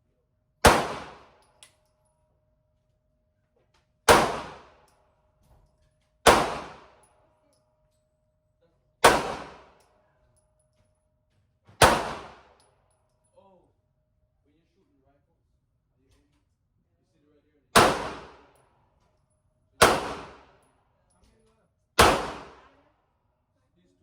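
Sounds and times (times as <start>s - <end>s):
gunshots with echo: 0.6s - 1.3s, 4.1s - 4.7s, 6.3s - 6.9s, 9.0s - 9.7s, 11.8s - 12.5s, 17.8s - 18.4s, 19.8s - 20.5s, 22.0s - 22.6s.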